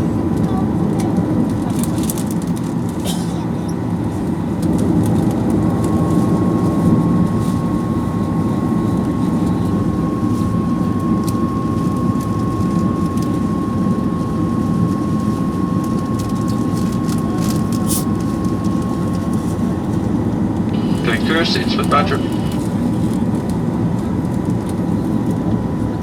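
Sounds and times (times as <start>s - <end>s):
aircraft cabin engine rumble: 0.0s - 26.0s
steady high tone: 20.8s - 22.7s.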